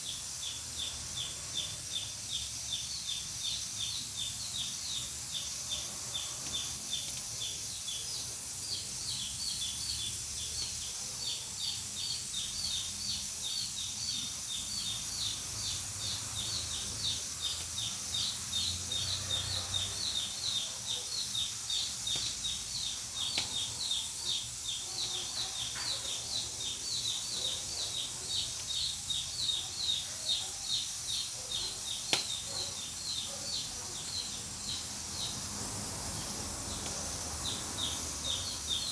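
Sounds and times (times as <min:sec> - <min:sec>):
pressure cooker hissing steam: 0:00.0 - 0:38.9
pressure cooker pulsing chirp: 0:00.0 - 0:38.9
burning wood popping: 0:23.2 - 0:23.7, 0:32.0 - 0:32.5.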